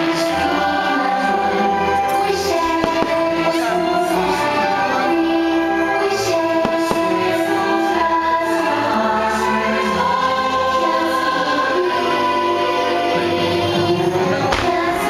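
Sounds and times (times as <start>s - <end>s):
choir singing: 0.0s - 15.0s
orchestral music over loudspeakers: 0.0s - 15.0s.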